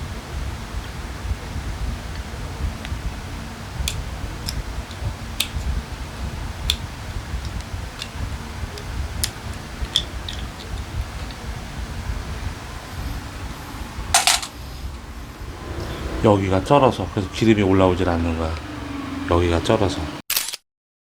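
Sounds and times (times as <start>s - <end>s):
steady low rumble: 0.1s - 20.2s
small parts and tools clicking: 9.2s - 10.9s, 14.1s - 14.5s.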